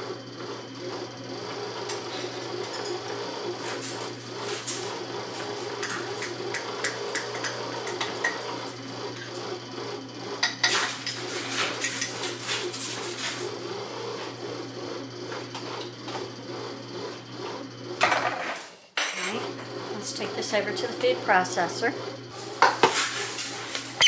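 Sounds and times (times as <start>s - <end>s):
utensils clinking against dishes: 1.9s - 4.0s, 5.8s - 8.6s, 10.4s - 13.4s, 18.3s - 19.5s.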